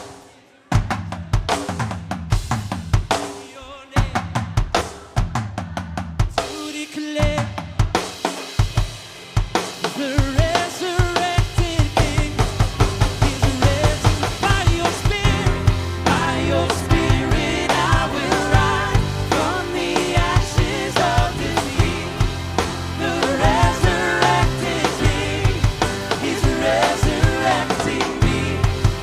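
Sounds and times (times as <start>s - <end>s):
drum kit kick and snare: 0.0s - 29.0s
keyboard and guitar chords: 12.0s - 29.0s.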